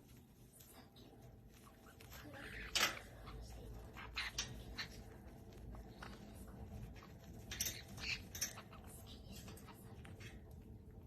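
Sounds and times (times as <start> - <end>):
parrot squeaks and clicks: 1.6 - 6.3, 6.9 - 10.5.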